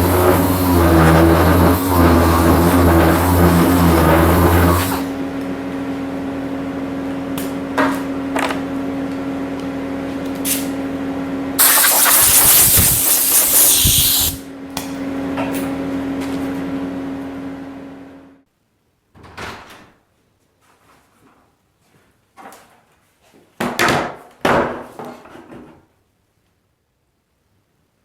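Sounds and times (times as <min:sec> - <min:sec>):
grinder rasping on resin: 0:00.0 - 0:05.2, 0:11.6 - 0:14.4
angle grinder whine: 0:00.0 - 0:05.7.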